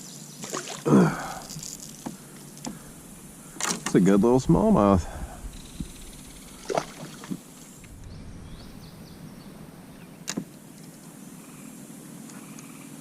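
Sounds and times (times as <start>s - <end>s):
water noise: 0.0s - 10.6s
wind: 0.0s - 13.0s
knocks and clicks in kayak: 3.6s - 4.2s.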